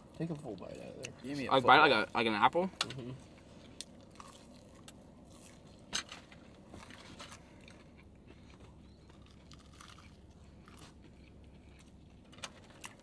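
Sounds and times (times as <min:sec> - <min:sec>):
chewing crunches: 0:03.6 - 0:13.0
crunching fried fish: 0:03.7 - 0:13.0.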